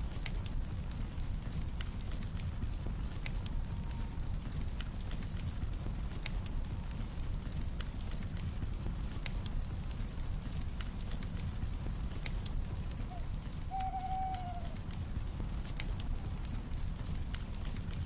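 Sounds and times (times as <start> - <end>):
campfire crackling and popping: 0.0 - 18.0
crickets trilling: 0.0 - 18.0
owl hooting: 13.1 - 14.8.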